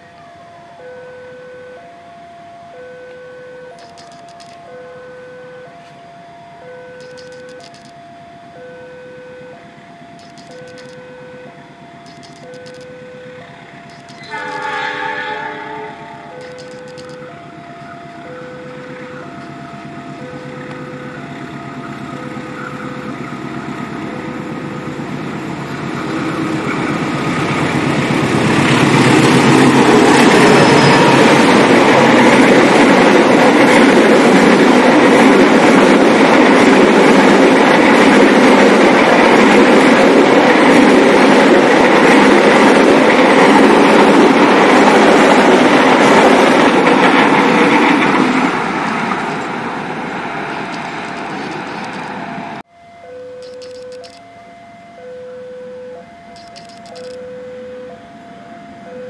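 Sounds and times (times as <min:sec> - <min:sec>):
two-tone crossing bell: 0:00.0 - 0:14.7, 0:15.9 - 0:25.1, 0:52.7 - 0:59.0
diesel locomotive rumble: 0:03.7 - 0:52.7
rush of wheels on rail: 0:09.7 - 0:52.6.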